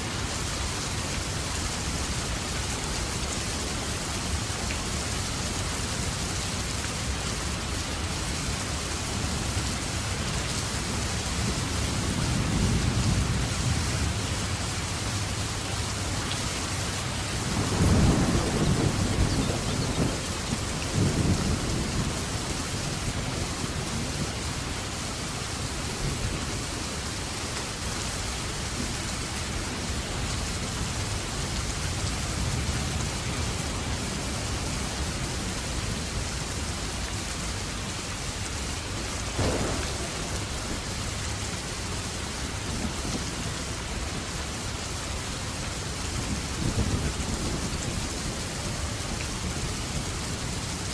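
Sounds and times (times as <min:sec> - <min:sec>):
steady rain falling: 0:00.0 - 0:50.9
thunder rumbling: 0:17.4 - 0:22.5, 0:39.3 - 0:41.3.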